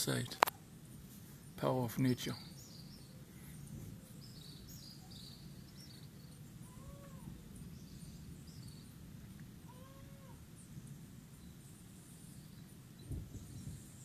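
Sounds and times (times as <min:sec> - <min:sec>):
small birds chirping: 0:00.0 - 0:14.0
cat-like animal call: 0:06.6 - 0:07.3, 0:09.6 - 0:10.4.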